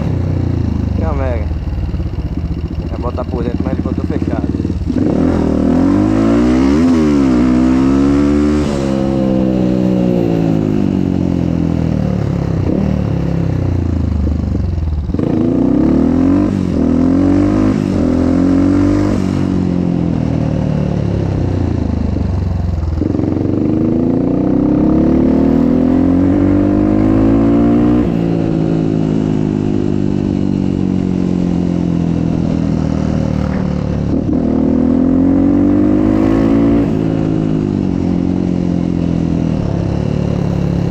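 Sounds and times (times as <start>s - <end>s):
motocross engine revving: 0.0s - 11.2s, 23.1s - 29.9s, 32.5s - 38.6s.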